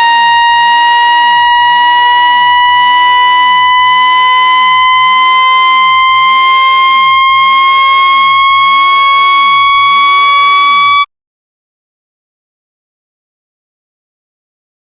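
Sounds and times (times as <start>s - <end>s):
buzzy electronic tone rising in pitch: 0.0s - 11.1s.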